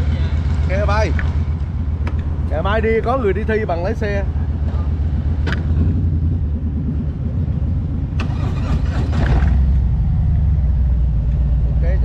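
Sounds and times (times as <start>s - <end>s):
motorcycle engines idling: 0.0s - 12.0s.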